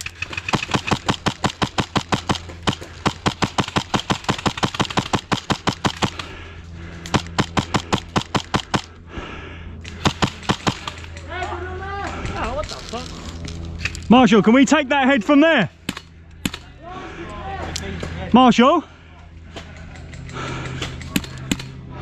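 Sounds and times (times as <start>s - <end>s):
airsoft gun firing rapidly: 0.0s - 6.3s, 7.1s - 8.9s, 10.0s - 11.2s.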